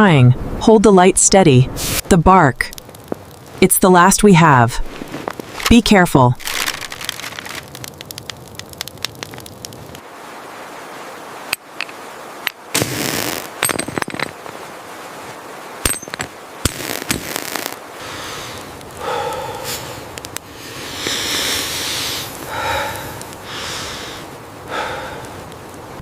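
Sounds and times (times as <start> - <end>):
sharp cracks and pops: 2.6 - 3.6, 4.8 - 10.0, 11.5 - 14.6, 15.8 - 17.8, 18.5 - 21.5, 22.2 - 23.5.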